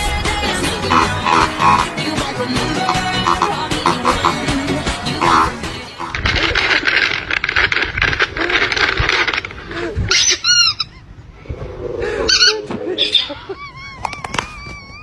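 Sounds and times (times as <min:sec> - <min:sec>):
animal making high-pitched calls: 0:00.9 - 0:02.0, 0:02.8 - 0:04.6, 0:05.2 - 0:06.2
loud noise: 0:00.9 - 0:02.0, 0:02.9 - 0:04.5, 0:05.2 - 0:06.2.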